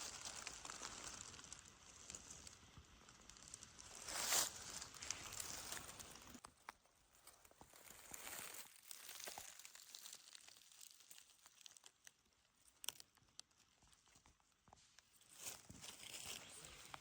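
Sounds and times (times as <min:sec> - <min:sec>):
rustling of dry leaves: 0:00.0 - 0:06.5, 0:07.1 - 0:12.1, 0:15.2 - 0:17.0
twigs snapping: 0:07.9 - 0:12.1, 0:12.7 - 0:13.6.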